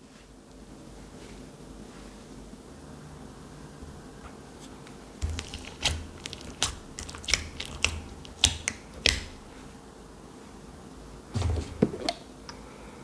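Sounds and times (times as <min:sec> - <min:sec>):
slime clicking pops: 0:05.2 - 0:09.7.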